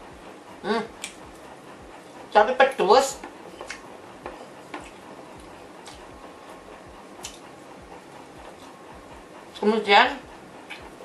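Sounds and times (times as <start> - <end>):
person chewing: 3.5 - 6.2, 7.2 - 7.4.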